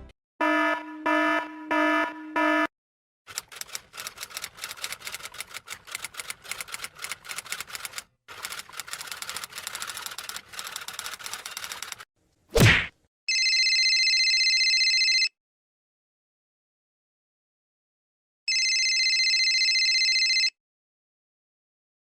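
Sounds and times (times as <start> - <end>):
typewriter keys clacking: 3.3 - 12.0.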